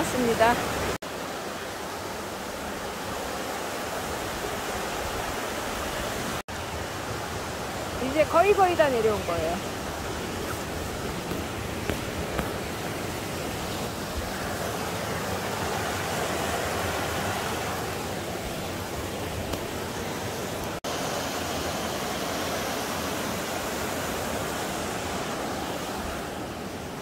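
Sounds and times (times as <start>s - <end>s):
mountain stream rushing: 0.0s - 27.0s.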